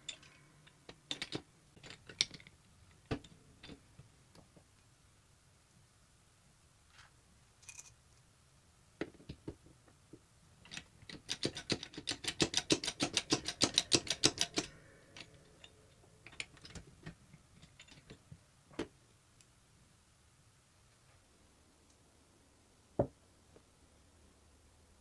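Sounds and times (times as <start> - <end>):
clicks and taps on metal: 10.7 - 18.2.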